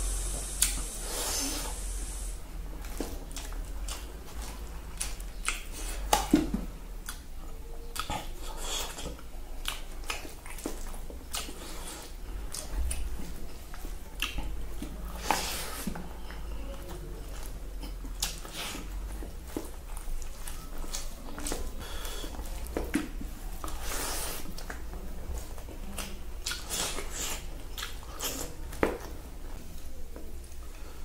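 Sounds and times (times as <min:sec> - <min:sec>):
high hiss: 0:00.0 - 0:02.4
person chewing: 0:00.0 - 0:29.2
wet mouth clicks: 0:04.9 - 0:06.4, 0:07.9 - 0:13.1, 0:14.2 - 0:14.6, 0:26.0 - 0:28.6.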